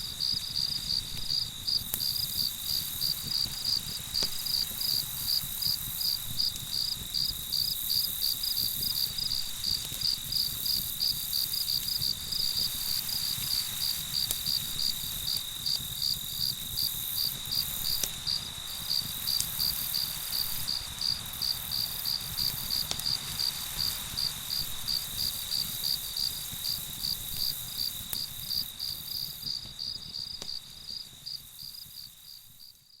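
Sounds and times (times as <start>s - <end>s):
cricket chirping: 0.0s - 33.0s.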